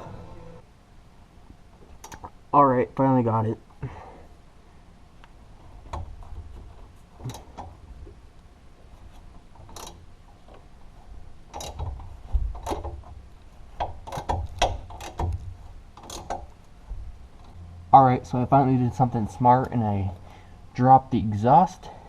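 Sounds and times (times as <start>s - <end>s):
tools and metal parts clinking: 11.5s - 13.0s, 16.0s - 16.5s.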